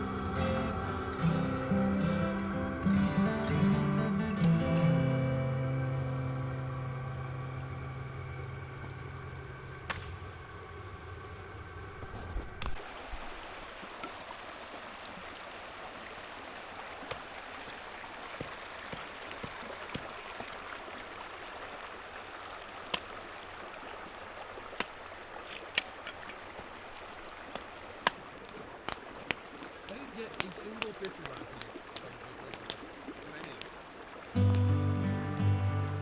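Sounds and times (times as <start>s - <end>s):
low hum: 0.0s - 13.3s
river flowing: 0.0s - 36.0s.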